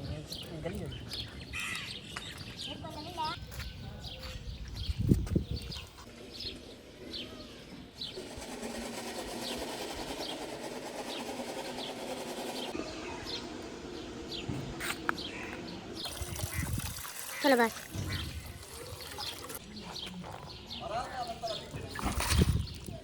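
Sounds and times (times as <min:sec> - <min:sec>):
dense low rattling: 0:08.2 - 0:12.8.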